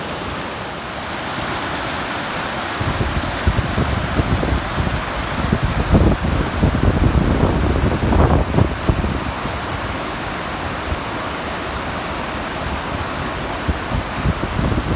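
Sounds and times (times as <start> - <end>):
waterfall roaring: 0.0 - 14.9
wind buffeting microphone: 2.8 - 11.1, 12.6 - 14.9.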